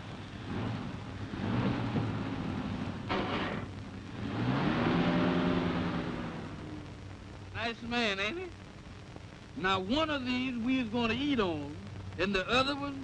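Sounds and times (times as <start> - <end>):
old film soundtrack hiss: 0.0 - 13.0
car engine speeding up: 0.2 - 7.0.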